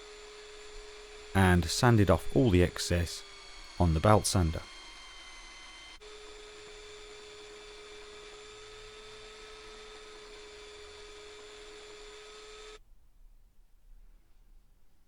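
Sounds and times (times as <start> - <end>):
belt sander motor running: 0.0 - 12.8.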